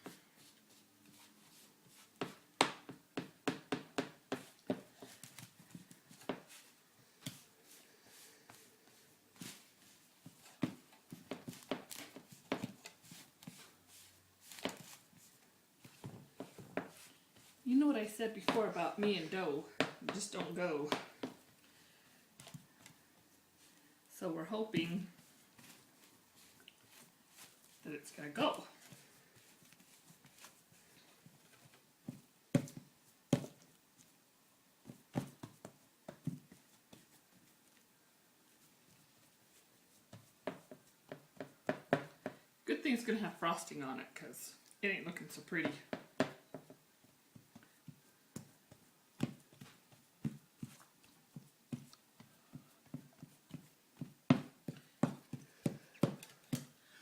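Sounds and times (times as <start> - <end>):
hands patting dough: 0.0 - 21.6, 39.2 - 42.4, 45.6 - 56.8.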